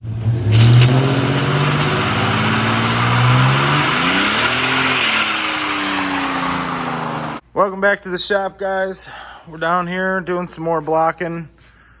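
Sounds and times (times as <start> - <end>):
vehicle engine revving: 0.0 - 7.4.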